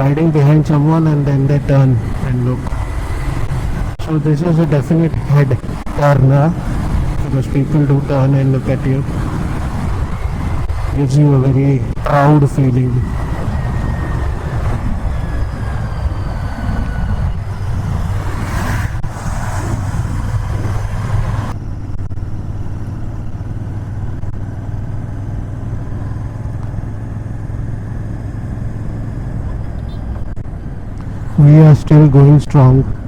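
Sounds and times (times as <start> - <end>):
motorcycle engine running: 0.0 - 31.4
wind on microphone: 1.6 - 4.0, 5.1 - 22.2.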